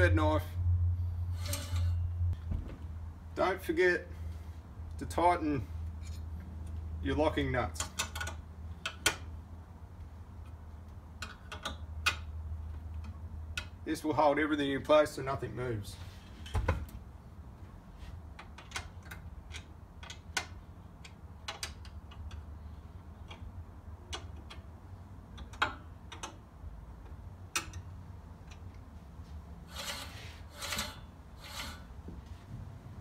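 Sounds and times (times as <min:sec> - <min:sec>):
short scraping strokes: 0:01.2 - 0:02.2, 0:29.6 - 0:32.4
sharp metal clicks and taps: 0:10.4 - 0:13.8, 0:18.3 - 0:22.6, 0:23.2 - 0:28.8.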